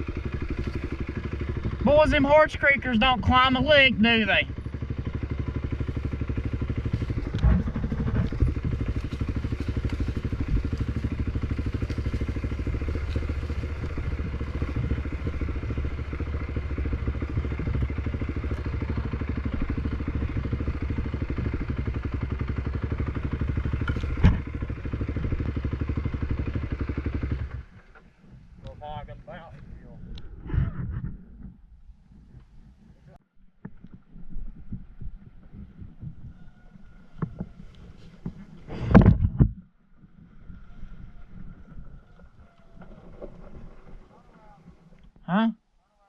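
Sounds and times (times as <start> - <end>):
single-cylinder engine running: 0.0 - 30.2.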